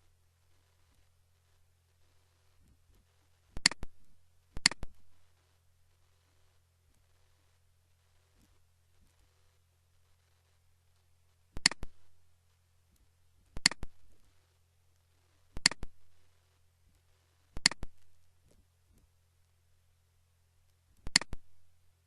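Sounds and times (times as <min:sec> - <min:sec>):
faint low hum: 0:00.0 - 0:22.0
computer mouse clicking: 0:03.6 - 0:03.9, 0:04.6 - 0:05.0, 0:11.6 - 0:12.0, 0:13.5 - 0:14.0, 0:15.6 - 0:15.9, 0:17.6 - 0:18.0, 0:21.0 - 0:21.5.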